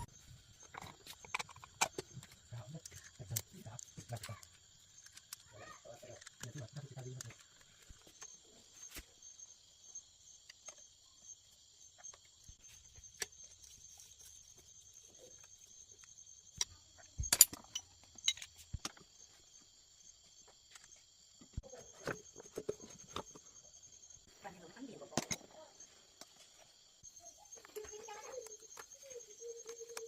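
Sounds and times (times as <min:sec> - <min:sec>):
high-pitched insect chirring: 0:27.0 - 0:30.0.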